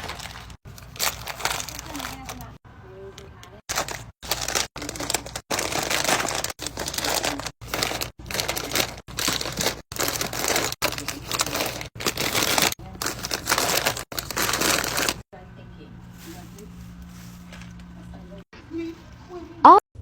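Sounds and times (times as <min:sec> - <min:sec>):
plastic packaging crinkling: 0:00.0 - 0:15.3.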